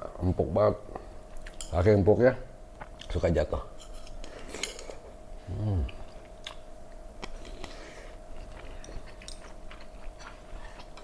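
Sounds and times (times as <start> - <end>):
man humming mm: 5.4 - 6.2
man chewing with wet mouth clicks: 5.8 - 11.0.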